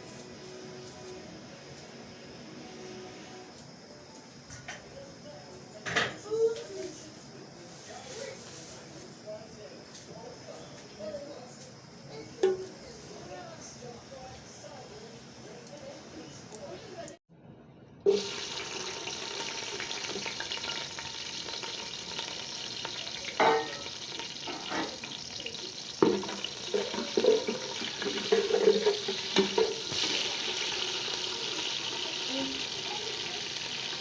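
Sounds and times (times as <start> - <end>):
oil sizzling in a pot: 18.0 - 34.0
utensil clinking against pot: 23.3 - 25.1, 26.0 - 30.3.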